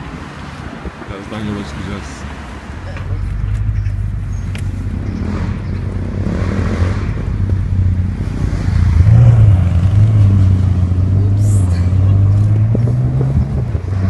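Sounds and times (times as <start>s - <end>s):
car engine revving: 3.1s - 14.0s.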